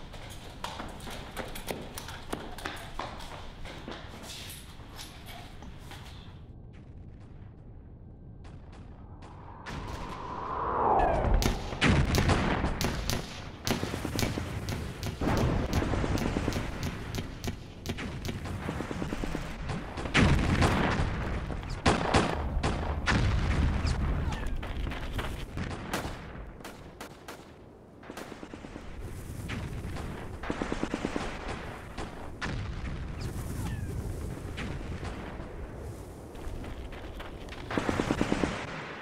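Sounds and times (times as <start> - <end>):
loud blasts: 8.6 - 17.2.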